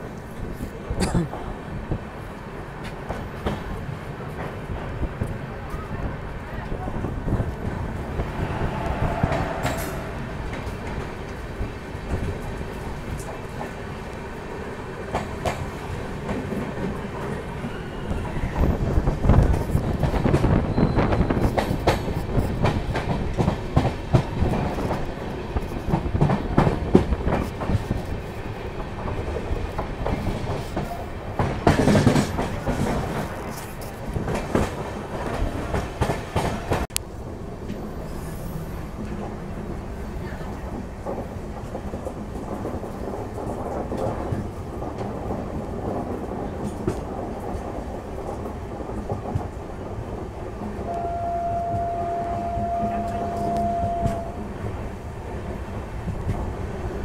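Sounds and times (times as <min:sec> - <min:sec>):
train running rumble: 0:00.0 - 0:57.0
train wheels clattering: 0:19.0 - 0:36.9.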